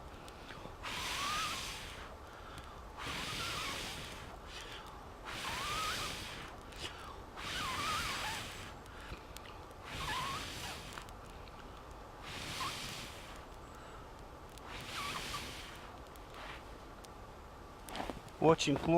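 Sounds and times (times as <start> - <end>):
person blowing on a campfire: 0.2 - 13.9, 14.5 - 16.7
breaths drawn in: 3.0 - 9.1.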